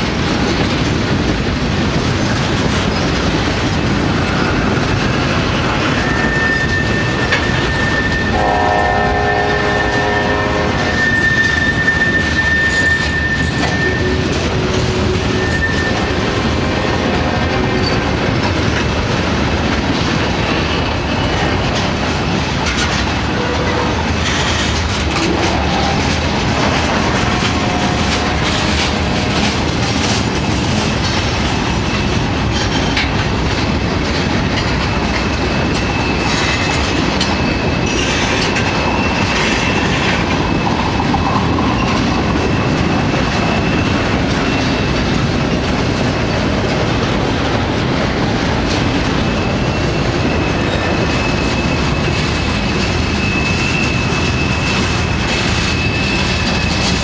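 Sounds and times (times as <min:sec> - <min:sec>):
train cars rumbling: 0:00.0 - 0:57.0
high wheel squeals: 0:05.7 - 0:18.1, 0:35.5 - 0:45.1, 0:49.1 - 0:57.0
wheels clicking over rail joints: 0:11.1 - 0:57.0.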